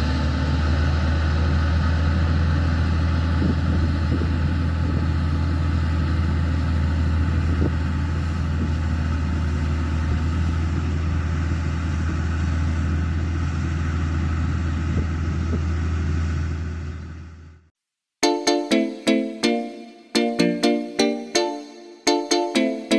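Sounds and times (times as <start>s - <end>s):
diesel engine droning: 0.0s - 17.7s.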